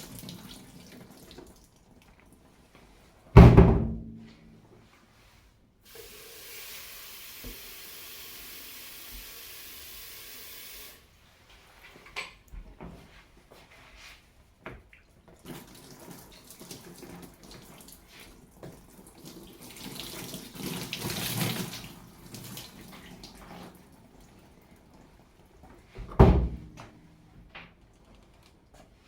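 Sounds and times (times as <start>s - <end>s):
water running and splashing: 0.0s - 2.0s, 5.9s - 11.0s, 15.4s - 24.6s
loud thump: 3.4s - 4.3s.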